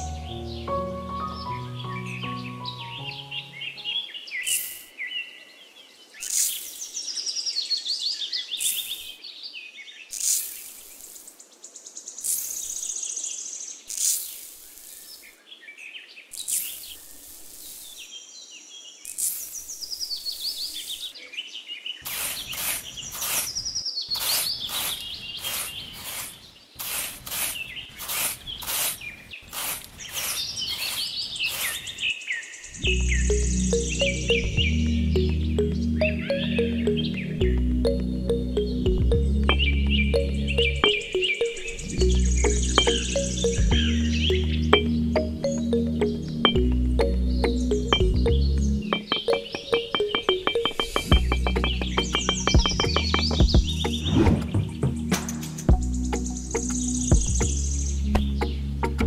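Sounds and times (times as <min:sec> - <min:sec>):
music: 0:00.0 - 0:04.0, 0:32.8 - 0:59.0
small birds chirping: 0:00.0 - 0:59.0
trowel scraping sand: 0:10.1 - 0:11.3, 0:13.9 - 0:15.3, 0:16.4 - 0:18.0, 0:19.1 - 0:19.8, 0:22.0 - 0:32.1.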